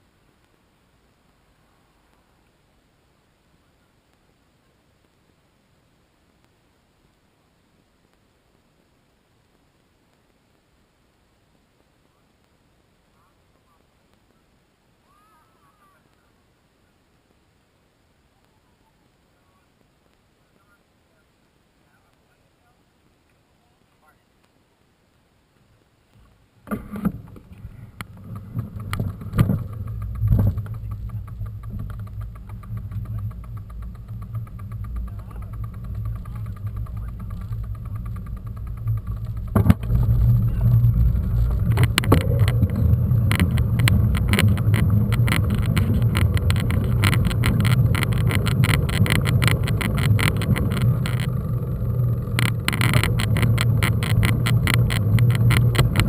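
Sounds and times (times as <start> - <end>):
bike clattering over bumps: 26.7 - 56.0
wind rumble on microphone: 26.7 - 56.0.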